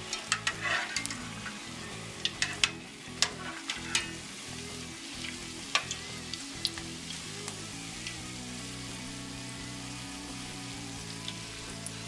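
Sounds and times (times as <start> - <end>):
food deep-frying in hot oil: 0.0 - 12.0
sharp pops and crackles: 5.2 - 8.2.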